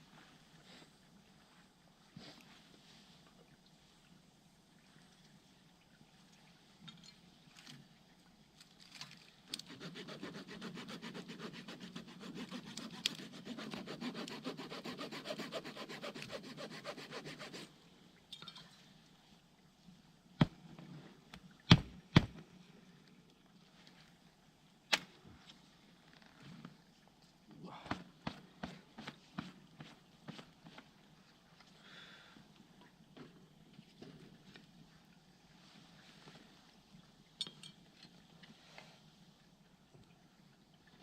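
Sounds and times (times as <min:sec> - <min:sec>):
hand saw cutting wood: 0:09.5 - 0:17.7.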